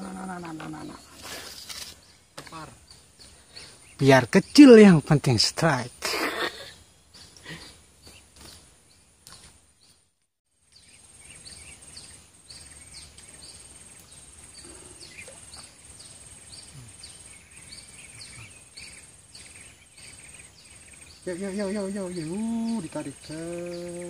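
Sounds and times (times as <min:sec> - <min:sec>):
high pulsing insect trill: 0:10.5 - 0:24.0.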